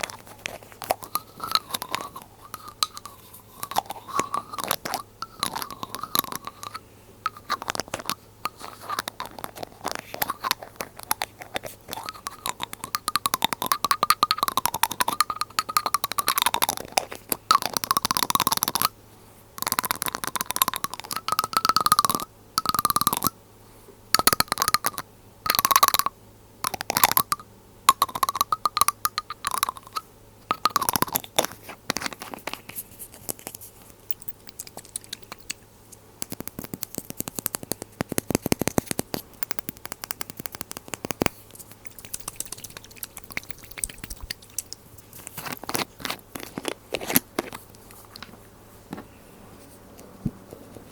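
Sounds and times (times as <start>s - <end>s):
liquid tones: 0.0s - 18.9s, 19.6s - 23.3s, 24.2s - 32.5s, 36.2s - 47.5s
glass dropper bottle clicking: 0.0s - 19.0s, 19.6s - 23.3s, 24.2s - 32.6s, 33.3s - 35.6s, 36.2s - 47.5s.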